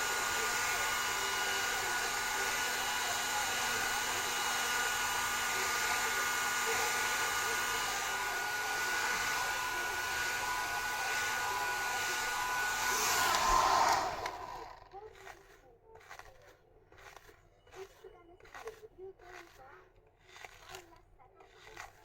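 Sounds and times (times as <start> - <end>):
hair dryer blowing: 0.0 - 15.0.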